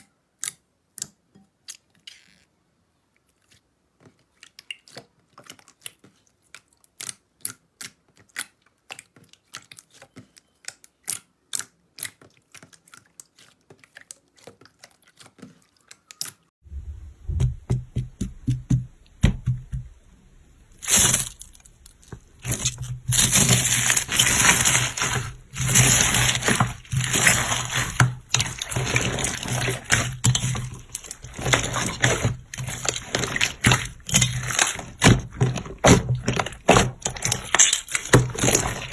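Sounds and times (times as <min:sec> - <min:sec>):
low hum: 0:16.7 - 0:18.2
slime squishing and crackling: 0:20.7 - 0:38.9.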